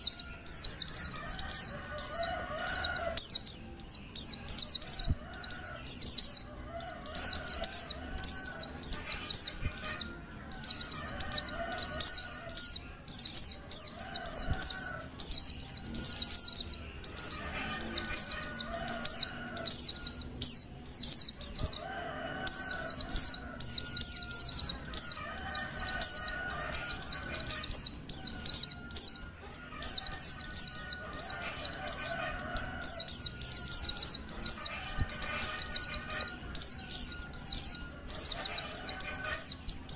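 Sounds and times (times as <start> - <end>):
bird chattering calls: 0.0 - 39.9.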